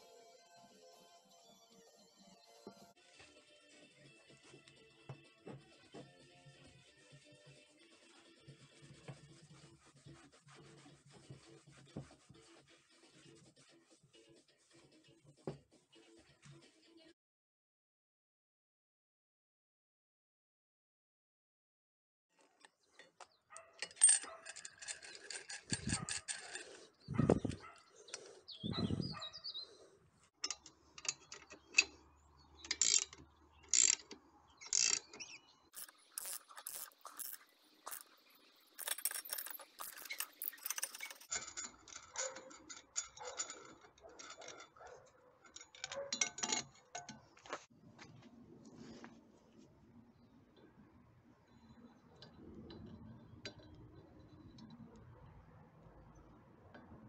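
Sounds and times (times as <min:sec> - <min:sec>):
metal parts clicking and ratcheting: 0:23.0 - 0:28.4, 0:30.4 - 0:32.0, 0:32.6 - 0:47.3.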